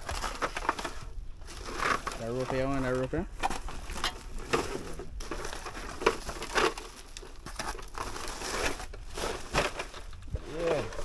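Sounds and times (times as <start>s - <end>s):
rubbish crinkling and crunching: 0.0s - 11.0s.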